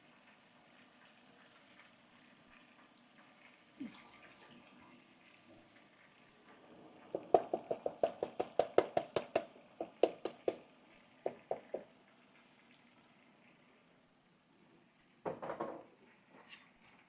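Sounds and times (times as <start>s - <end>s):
sharp knocks from kitchen work: 7.1s - 10.6s, 11.2s - 11.9s, 15.2s - 15.9s.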